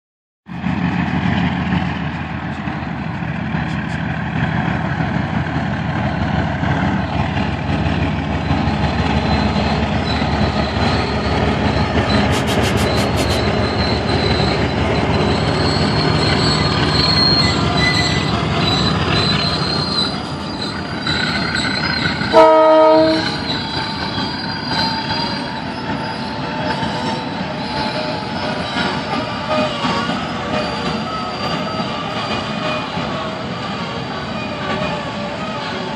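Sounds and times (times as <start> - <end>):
diesel locomotive engine: 0.5 - 35.9
train wheels rolling on rails: 0.6 - 35.9
high wheel squeal: 6.0 - 35.9
locomotive horn blast: 22.3 - 23.4.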